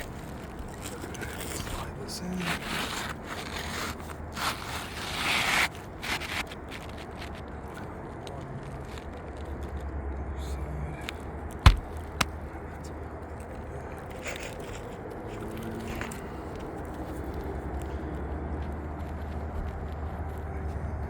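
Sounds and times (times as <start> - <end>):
shingle scraping and rustling: 0.0 - 7.5, 11.7 - 12.3
sharp knocks: 11.7 - 12.3.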